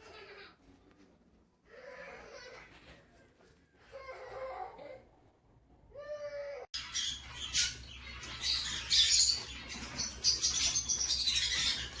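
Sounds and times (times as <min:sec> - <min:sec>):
small birds chirping: 0:06.7 - 0:12.0.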